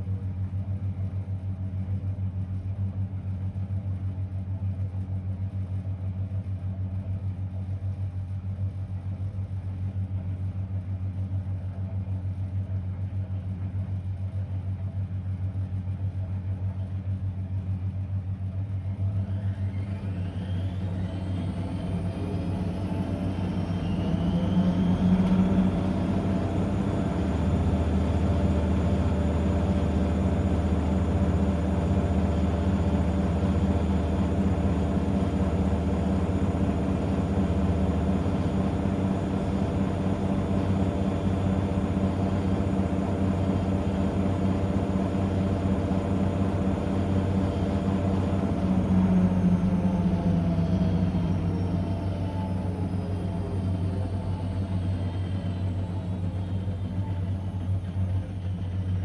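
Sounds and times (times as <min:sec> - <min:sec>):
washing machine humming: 0:19.4 - 0:59.0.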